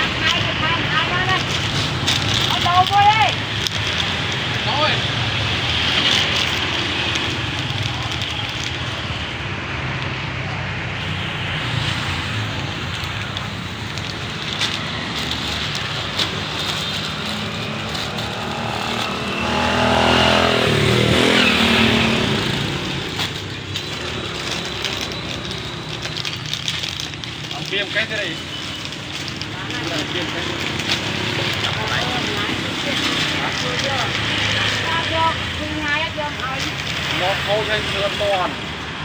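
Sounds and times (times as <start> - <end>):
traffic noise: 0.0 - 39.0
vehicle engine passing close: 10.6 - 38.5.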